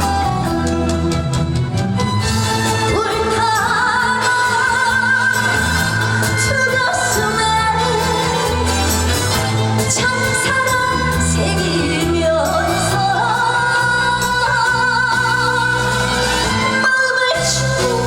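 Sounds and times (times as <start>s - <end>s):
band backing track: 0.0s - 18.0s
woman singing with vibrato: 2.7s - 18.0s.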